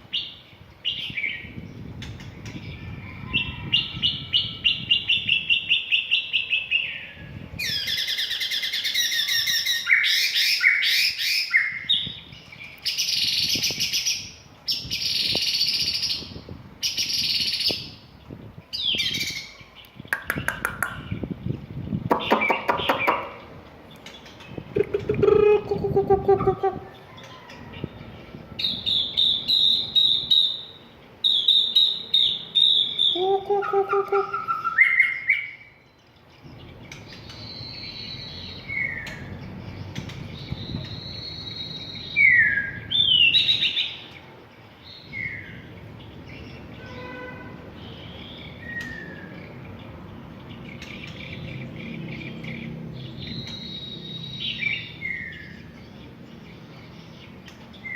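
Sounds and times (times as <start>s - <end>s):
bird singing: 0.1s - 18.1s, 18.7s - 57.9s.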